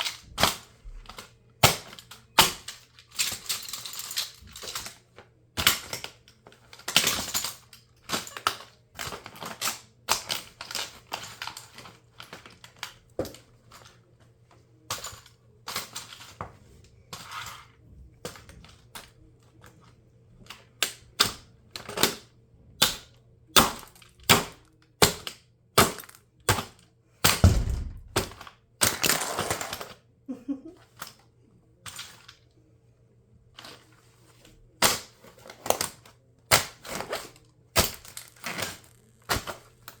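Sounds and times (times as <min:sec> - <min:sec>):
heavy low thud: 0:27.4 - 0:28.4.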